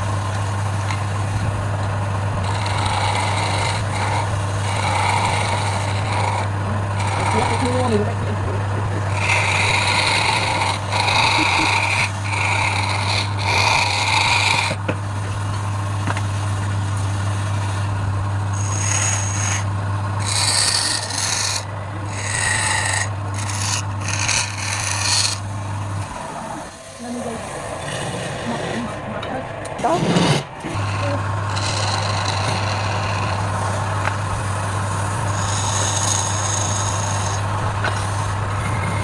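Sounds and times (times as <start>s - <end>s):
tool scraping spinning wood: 0.0s - 39.0s
wood lathe motor hum: 0.0s - 39.0s.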